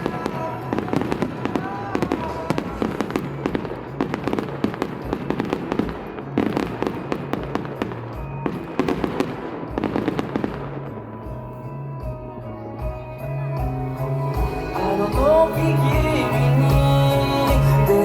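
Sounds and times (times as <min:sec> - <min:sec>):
fireworks bursting and crackling: 0:00.0 - 0:11.7
music playing: 0:00.0 - 0:18.0.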